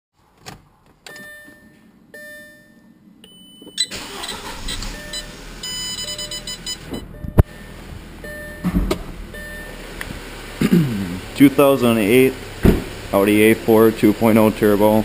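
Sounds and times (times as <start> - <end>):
electronic chime tones: 1.3 - 4.0, 4.7 - 8.7, 9.4 - 9.8
car engine cranking and idling: 3.9 - 15.0.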